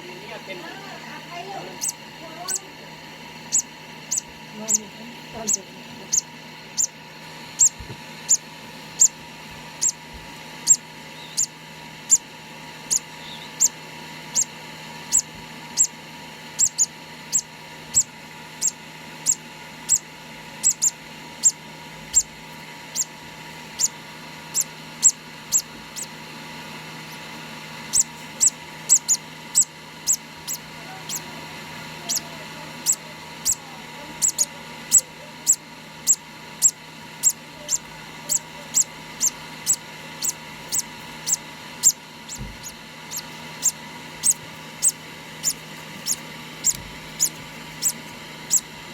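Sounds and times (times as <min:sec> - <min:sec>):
chick peeping: 0:01.7 - 0:02.7, 0:03.5 - 0:07.0, 0:07.6 - 0:09.2, 0:09.8 - 0:10.0, 0:10.6 - 0:11.5, 0:12.8 - 0:14.5, 0:15.1 - 0:16.0, 0:16.6 - 0:20.0, 0:20.6 - 0:22.3, 0:22.9 - 0:23.1, 0:23.7 - 0:26.1, 0:27.9 - 0:31.4, 0:32.0 - 0:48.7.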